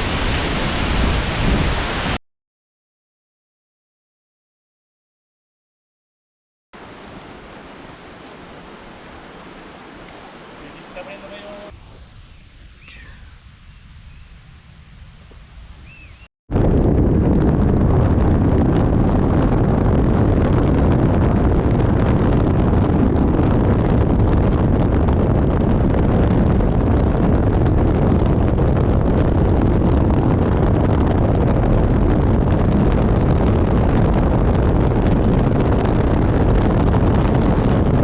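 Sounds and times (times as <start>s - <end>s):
waterfall roaring: 6.8s - 11.7s
wind buffeting microphone: 6.8s - 38.0s.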